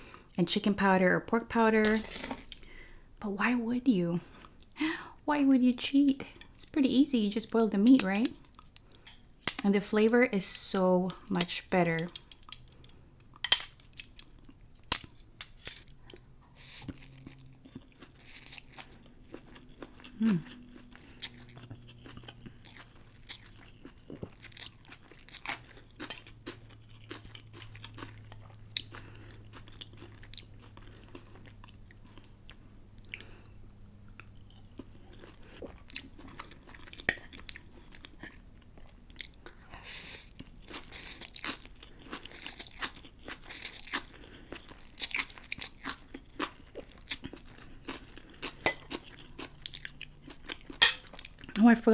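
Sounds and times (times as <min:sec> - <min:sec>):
chewing and crunching food: 0:10.8 - 0:51.8.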